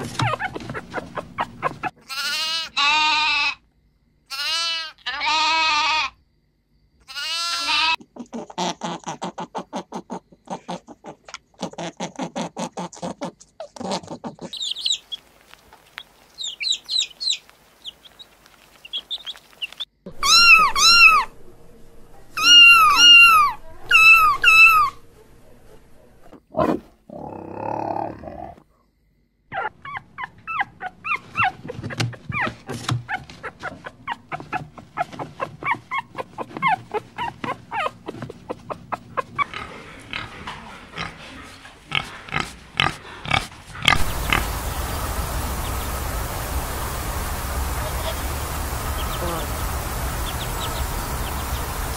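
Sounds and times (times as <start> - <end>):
faint high animal chirps: 14.4 - 15.2, 16.0 - 21.3, 22.4 - 25.0
rapid short squeaks and yelps: 20.1 - 21.3, 22.4 - 25.0.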